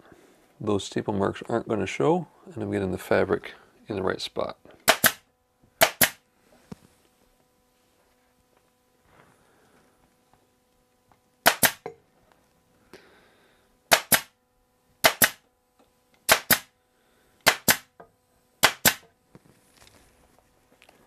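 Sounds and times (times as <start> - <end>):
staple gun firing: 4.9 - 5.2, 5.8 - 6.2, 11.5 - 11.8, 13.9 - 14.3, 15.0 - 15.4, 16.3 - 16.7, 17.4 - 17.9, 18.6 - 19.0.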